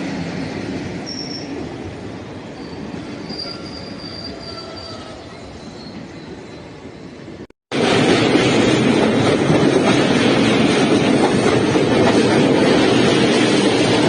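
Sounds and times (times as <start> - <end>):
train wheels squealing on rails: 1.0 - 7.1
train rumble: 6.8 - 14.0.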